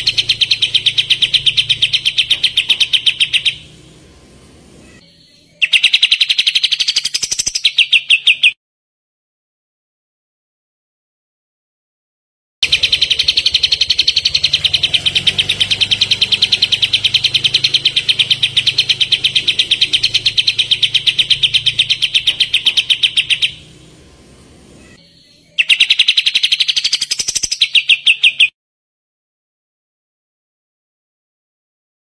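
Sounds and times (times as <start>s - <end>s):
songbird trilling: 0.0s - 3.8s, 4.8s - 8.6s, 12.6s - 24.0s, 24.8s - 28.5s.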